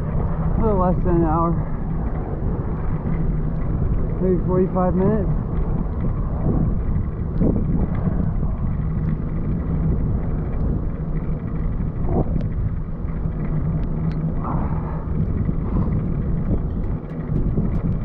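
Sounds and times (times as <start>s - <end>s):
wind on microphone: 0.0s - 18.0s
faint ticks: 5.5s - 18.0s.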